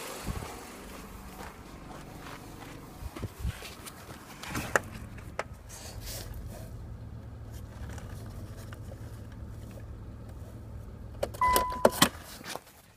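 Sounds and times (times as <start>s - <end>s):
car engine idling: 0.0s - 12.4s
short electronic beep: 11.4s - 12.0s.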